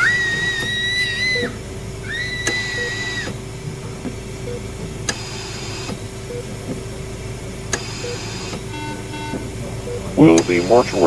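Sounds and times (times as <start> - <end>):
high whistling tone: 0.0 - 6.5
steady hum: 0.0 - 11.0
short low beep: 8.0 - 10.7.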